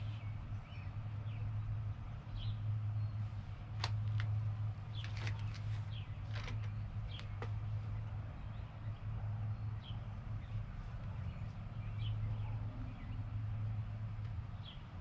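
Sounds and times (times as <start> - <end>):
parts clicking and tapping: 6.3 - 7.6.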